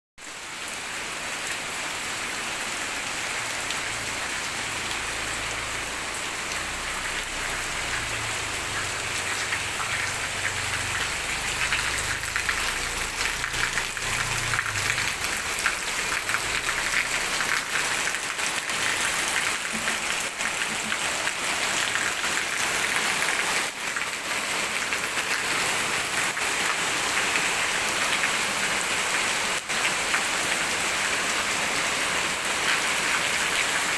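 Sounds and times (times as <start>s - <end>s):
heavy rain pattering: 0.2s - 33.9s.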